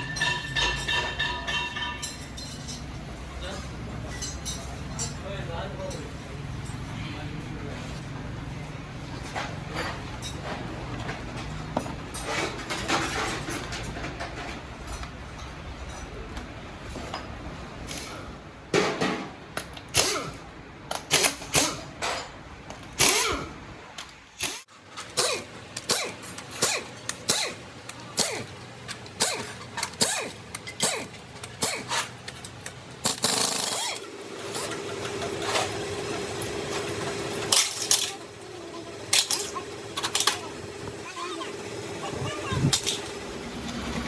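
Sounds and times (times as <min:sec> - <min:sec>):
metal tools knocking and clinking: 0:00.0 - 0:06.9, 0:37.0 - 0:38.4, 0:39.0 - 0:40.4, 0:42.7 - 0:43.3.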